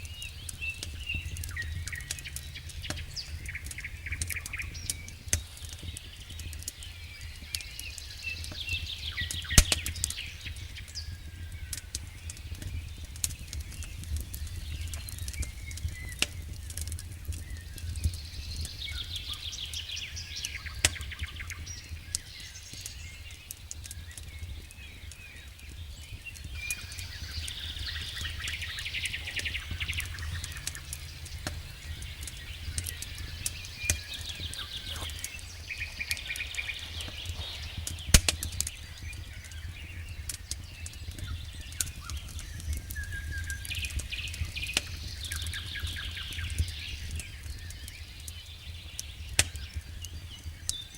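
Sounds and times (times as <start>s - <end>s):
fire low rumble: 0.0s - 50.9s
sharp pops of fire: 0.0s - 50.9s
wood fire crackling: 0.0s - 50.9s
high chirping trills: 26.7s - 39.8s.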